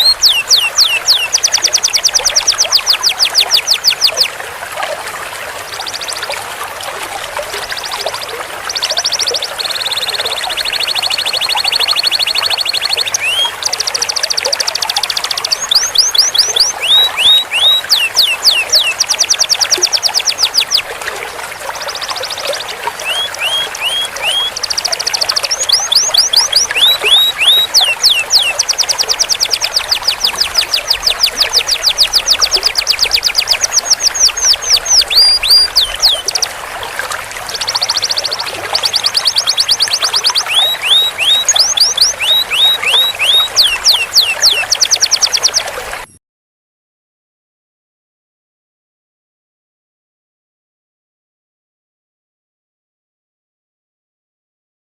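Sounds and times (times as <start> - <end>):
canary singing trills: 0.0 - 4.3, 7.4 - 20.9, 21.8 - 36.5, 37.4 - 46.2.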